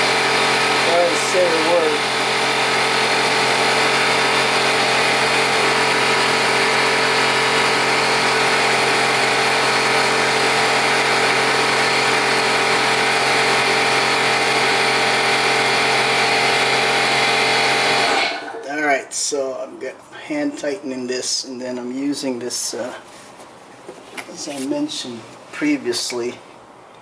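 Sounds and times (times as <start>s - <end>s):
air compressor droning: 0.0s - 18.8s.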